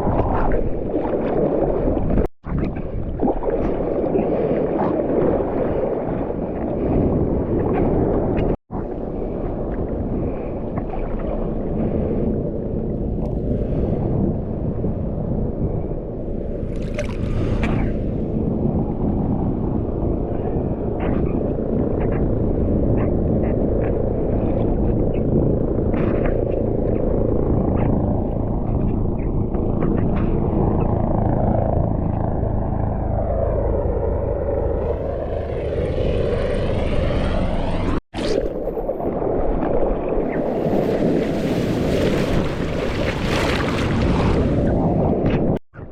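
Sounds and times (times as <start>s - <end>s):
wind buffeting microphone: 0.0s - 38.0s, 38.9s - 45.9s
muffled surf rumble: 0.0s - 45.9s
small splashes: 16.6s - 17.8s, 40.5s - 44.6s.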